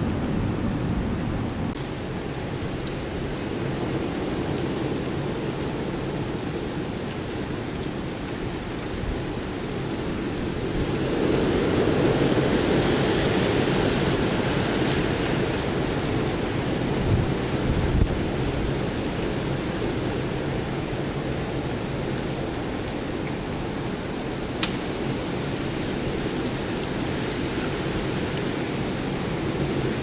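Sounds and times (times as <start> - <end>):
storm wind blowing: 0.0 - 7.0, 8.5 - 22.8.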